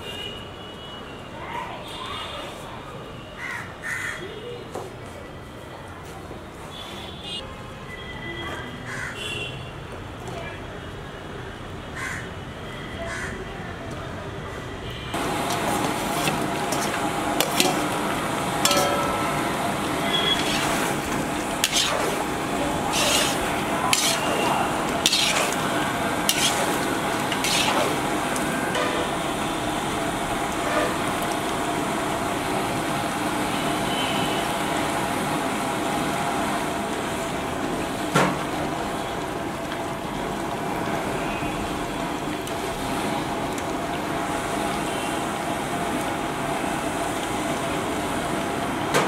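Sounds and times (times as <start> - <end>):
food sizzling in a wok: 15.2 - 37.4
metal spatula scraping pan: 15.5 - 28.3.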